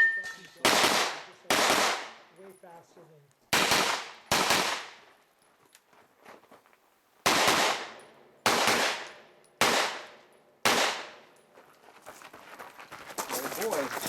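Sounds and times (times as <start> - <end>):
gunshots with echo: 0.6 - 2.2, 3.6 - 5.0, 7.3 - 11.2.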